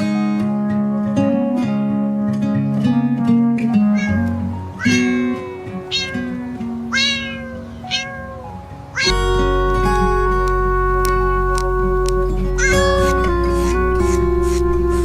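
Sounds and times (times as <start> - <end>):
background music: 0.0 - 15.0
cat meowing: 4.0 - 9.2, 12.6 - 13.2.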